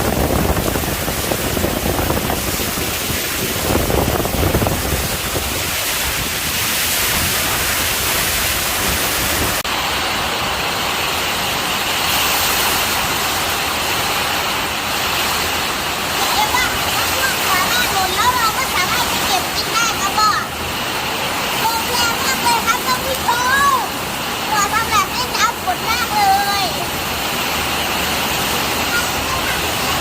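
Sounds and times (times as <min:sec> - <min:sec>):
wind buffeting microphone: 0:00.0 - 0:09.7
strong wind blowing: 0:00.0 - 0:30.0.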